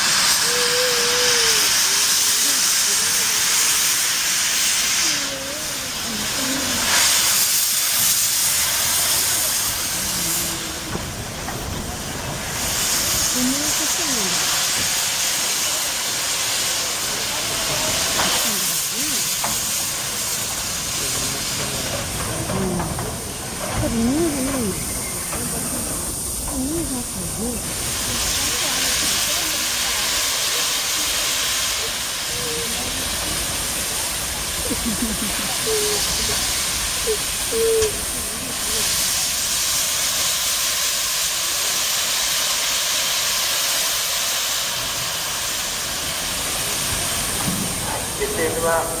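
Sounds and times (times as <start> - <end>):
people talking: 0.0 - 4.2, 4.9 - 7.0, 8.6 - 12.7, 13.3 - 14.6, 15.4 - 39.6, 46.7 - 49.0
steam locomotive hissing: 0.0 - 49.0.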